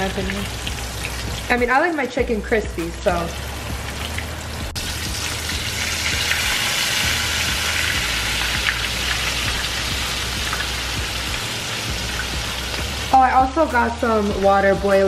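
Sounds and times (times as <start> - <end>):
chicken sizzling in a skillet: 0.0 - 14.3.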